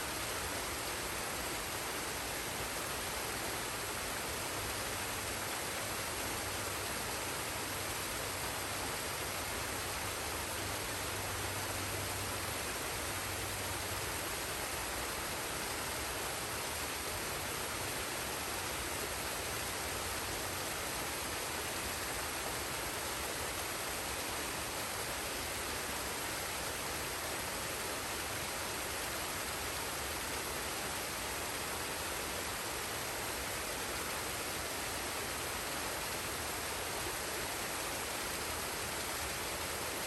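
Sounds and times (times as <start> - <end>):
waterfall and stream rushing: 0.0 - 40.0.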